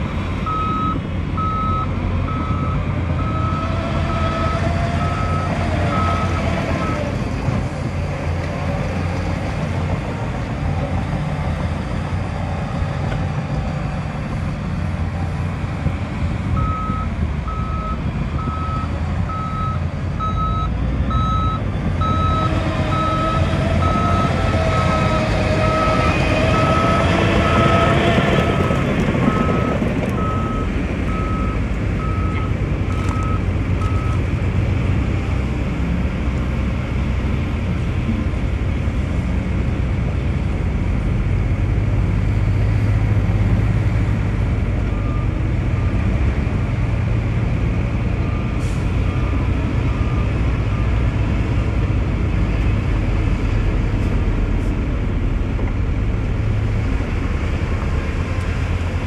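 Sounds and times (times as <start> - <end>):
diesel engine running: 0.0 - 59.0
reversing alarm beeping: 0.4 - 7.0, 16.6 - 34.2.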